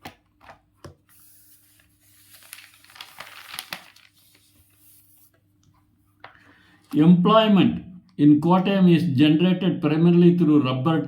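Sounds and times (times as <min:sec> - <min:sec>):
faint electrical hum: 0:00.0 - 0:11.0
crinkling rustling with clicks: 0:01.8 - 0:04.6.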